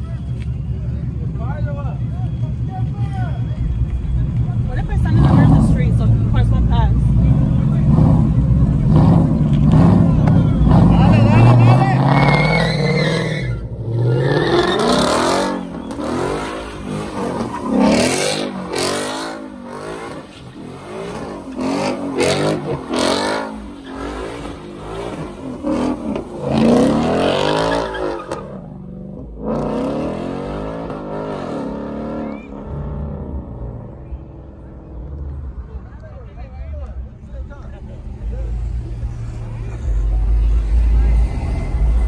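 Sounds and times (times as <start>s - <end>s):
car engine revving hard: 4.9s - 33.6s
tyres spinning on pavement: 7.2s - 28.9s.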